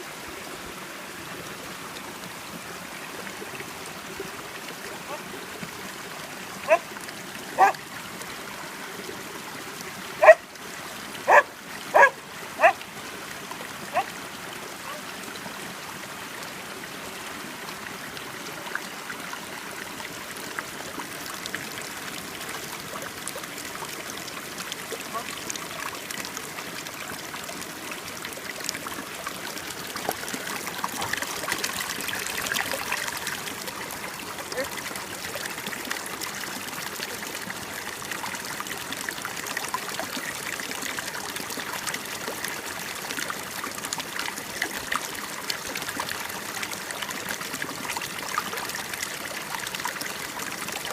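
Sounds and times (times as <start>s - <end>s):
running stream: 0.0s - 50.9s
dog yipping: 7.6s - 7.8s, 10.2s - 10.4s, 11.3s - 12.8s
small splashes and drips: 17.2s - 50.9s.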